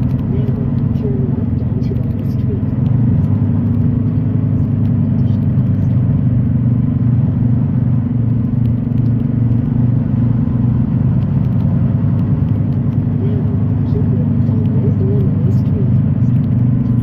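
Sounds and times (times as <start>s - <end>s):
truck diesel engine and road noise: 0.0s - 17.0s.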